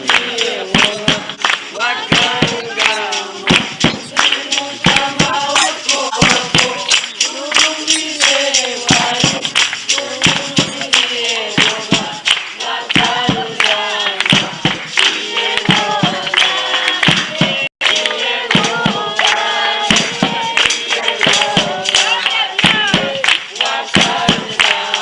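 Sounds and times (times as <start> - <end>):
person singing: 0.0 - 25.0
sharp percussive beats: 0.0 - 25.0.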